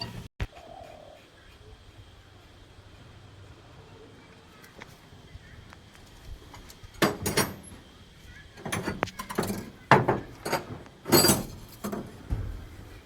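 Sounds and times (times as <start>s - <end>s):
metal tools knocking and clinking: 6.6s - 7.8s, 8.6s - 12.2s.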